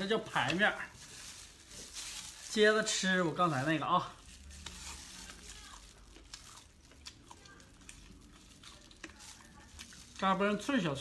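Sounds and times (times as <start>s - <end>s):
chewing and crunching: 0.1s - 11.0s.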